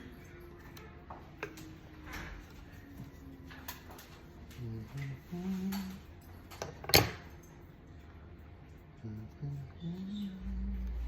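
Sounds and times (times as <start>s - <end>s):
person humming low notes: 9.0s - 11.0s.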